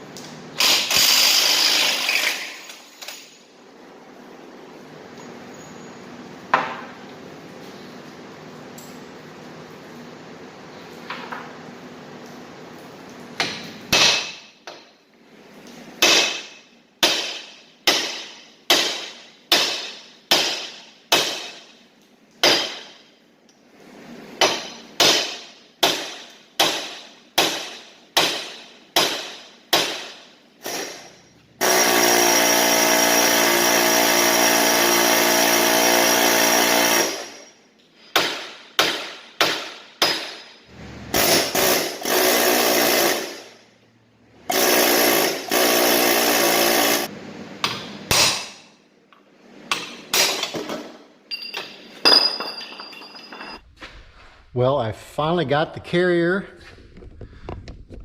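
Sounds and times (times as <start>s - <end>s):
power tool running: 0.6s - 2.6s, 31.6s - 37.4s, 40.7s - 43.5s, 44.5s - 47.1s.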